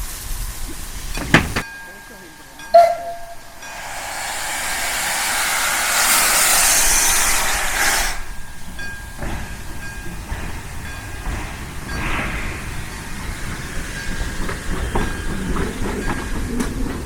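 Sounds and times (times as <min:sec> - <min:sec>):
steam locomotive hissing: 0:02.9 - 0:17.0
low rumble: 0:03.7 - 0:08.4.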